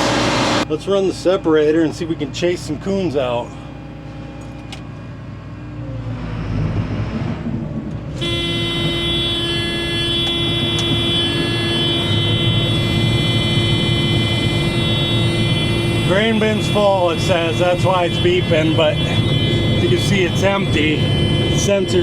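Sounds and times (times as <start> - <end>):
combine diesel engine rumbling: 0.0 - 22.0
steady electronic warning tone: 8.1 - 22.0.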